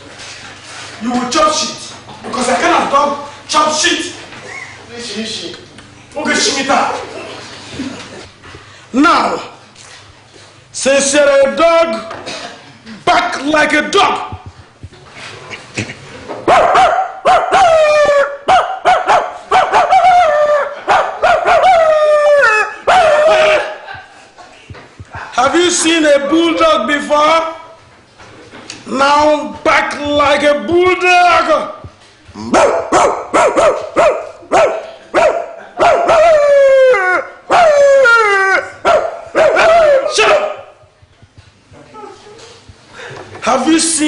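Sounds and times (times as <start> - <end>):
man imitating dog barking: 16.6 - 23.9, 32.4 - 40.8.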